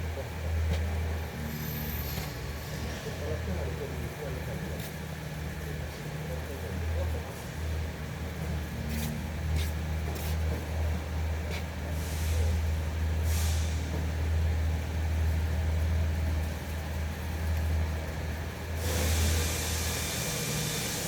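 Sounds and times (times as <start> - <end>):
low mechanical hum: 0.0 - 21.0
hiss: 12.0 - 14.1, 18.8 - 21.0.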